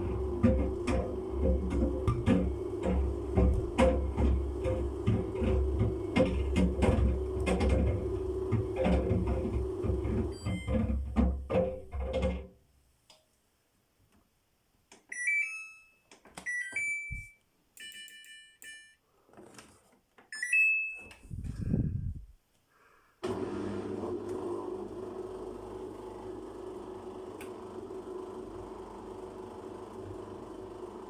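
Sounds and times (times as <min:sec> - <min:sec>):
washing machine rumble: 0:00.0 - 0:12.3
washing machine motor hum: 0:00.0 - 0:12.4, 0:23.2 - 0:31.0
short button beeps: 0:16.5 - 0:18.2.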